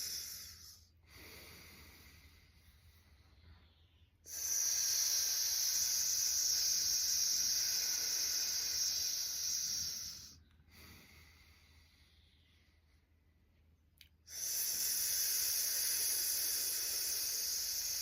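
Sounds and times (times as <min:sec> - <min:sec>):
person exhaling through teeth: 0:04.3 - 0:11.1.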